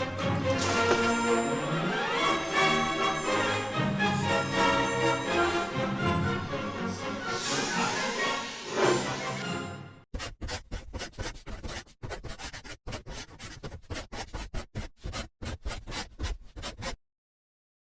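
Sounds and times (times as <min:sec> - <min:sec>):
music: 0:00.0 - 0:10.0
quick scratching strokes: 0:10.2 - 0:17.0.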